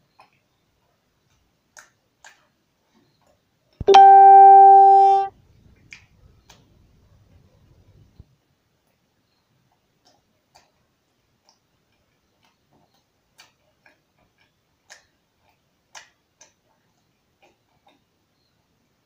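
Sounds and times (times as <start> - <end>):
wet chewing clicks and lip smacks: 10.0 - 18.1.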